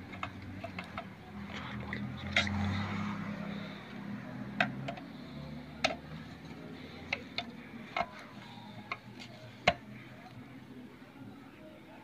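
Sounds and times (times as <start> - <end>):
tools clicking and tapping: 0.0 - 1.2, 4.5 - 9.9.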